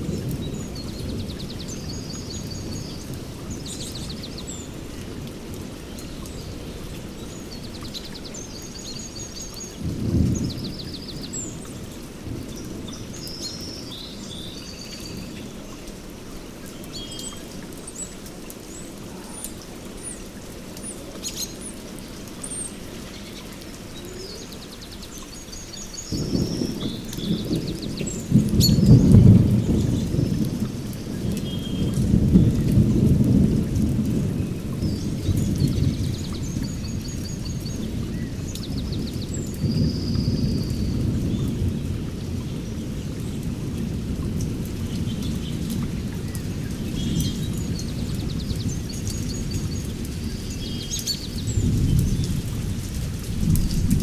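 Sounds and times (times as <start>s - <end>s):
steady rain: 0.0s - 54.0s
thunder rumbling: 9.8s - 13.1s, 26.1s - 54.0s.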